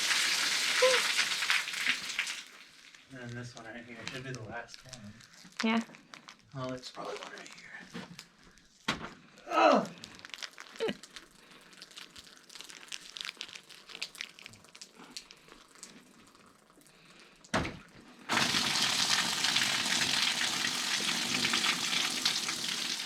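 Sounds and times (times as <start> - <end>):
water dripping: 0.0 - 3.0
rainwater pouring from roof: 0.0 - 3.7, 9.6 - 17.4, 18.3 - 23.0
thump: 8.9 - 9.2, 17.5 - 17.9.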